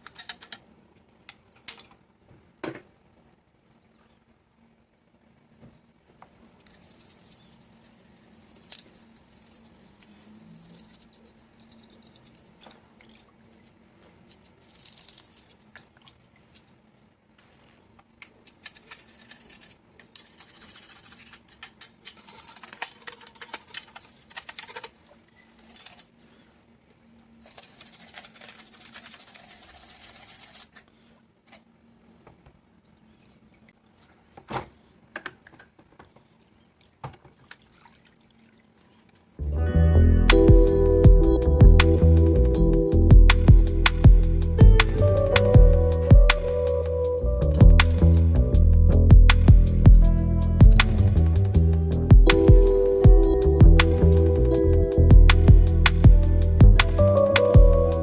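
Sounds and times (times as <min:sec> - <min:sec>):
scratchy hissing noise: 0:06.4 - 0:12.6, 0:18.6 - 0:24.4, 0:40.3 - 0:58.0.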